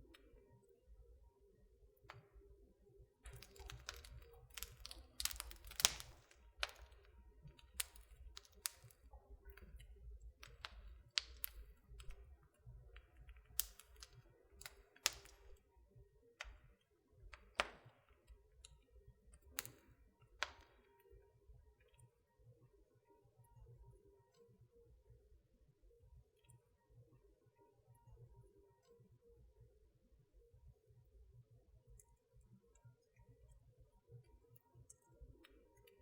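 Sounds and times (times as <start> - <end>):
wood fire crackling: 3.2 - 15.8, 16.4 - 20.9.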